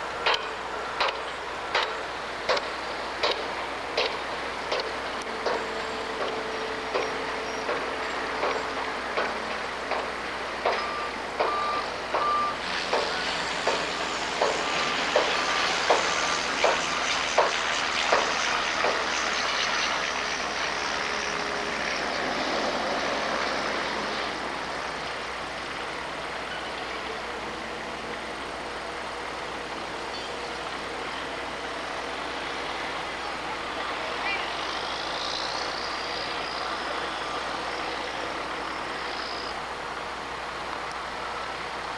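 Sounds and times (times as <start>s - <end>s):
engine and site noise: 0.0s - 41.9s
reversing alarm beeping: 5.4s - 16.0s.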